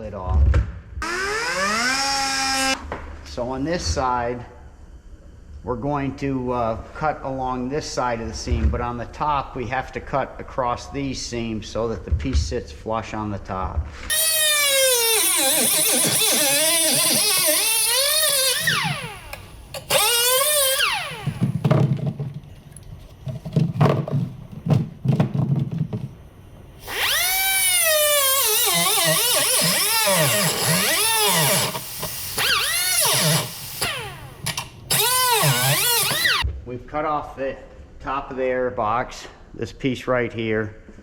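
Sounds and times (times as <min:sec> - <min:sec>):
die grinder whining cutting metal: 0:01.0 - 0:02.8, 0:14.1 - 0:21.6, 0:26.8 - 0:36.4.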